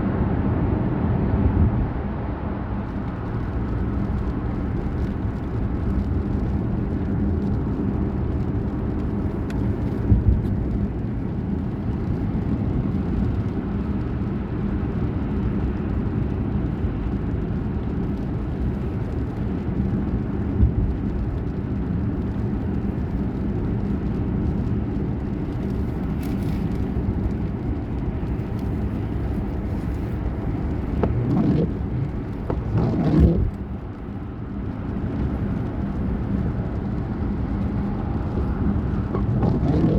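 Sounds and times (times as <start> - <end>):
motor vehicle engine rumbling: 24.1 - 39.9.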